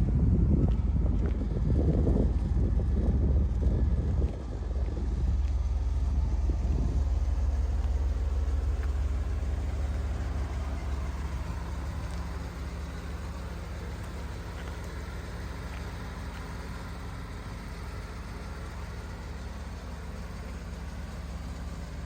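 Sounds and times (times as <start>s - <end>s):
wind noise on microphone: 0.0s - 8.7s
car engine running: 0.0s - 22.0s.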